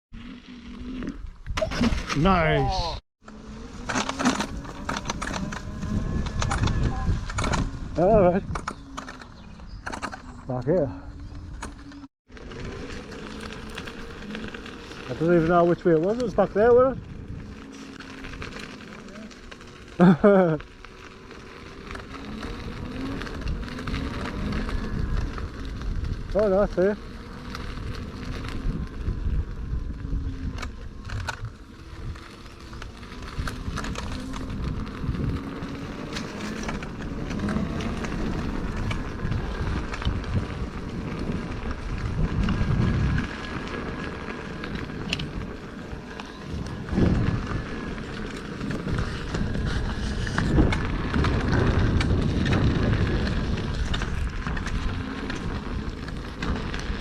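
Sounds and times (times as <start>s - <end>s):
wind rumbling on microphone: 0.2s - 57.0s
electric motor whine: 3.2s - 57.0s.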